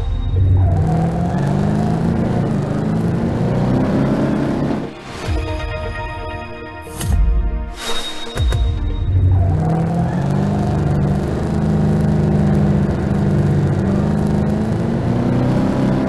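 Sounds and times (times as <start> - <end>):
turbocharged car engine running: 0.0 - 5.0, 8.9 - 16.0.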